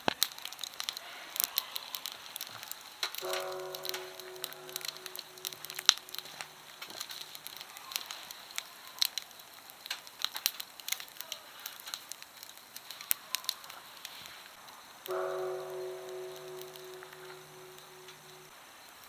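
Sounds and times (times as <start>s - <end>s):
campfire crackling and popping: 0.0s - 19.0s
temple bell hum: 3.2s - 6.6s, 15.1s - 18.5s.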